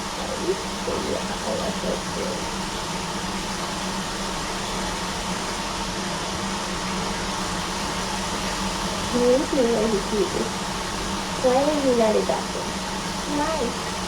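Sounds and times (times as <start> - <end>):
low hum: 0.0 - 3.8
steady hiss: 0.0 - 14.0.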